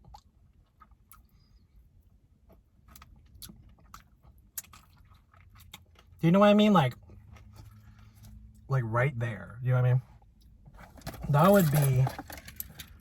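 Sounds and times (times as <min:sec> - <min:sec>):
wet chewing and mouth smacks: 0:00.0 - 0:01.6, 0:02.4 - 0:06.2.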